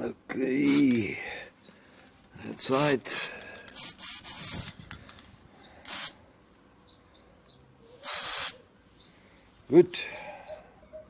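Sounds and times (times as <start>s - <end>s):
aerosol spray hiss: 8.0s - 8.6s.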